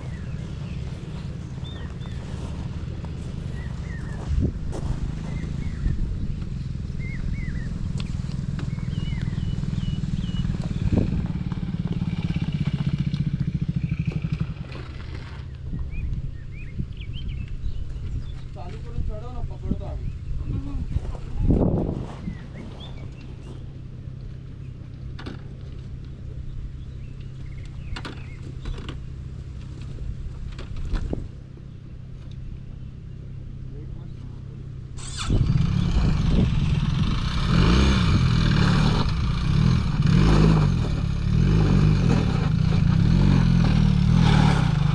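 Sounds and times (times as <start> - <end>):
low hum: 0.0 - 18.5
birds chirping: 0.0 - 30.3, 31.2 - 44.9
motorcycle engine running: 0.0 - 44.9.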